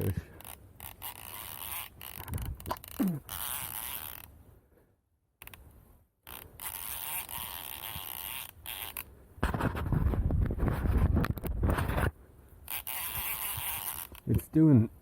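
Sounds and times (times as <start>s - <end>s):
fishing reel rasping: 0.0s - 4.4s, 5.4s - 9.1s, 12.6s - 14.5s.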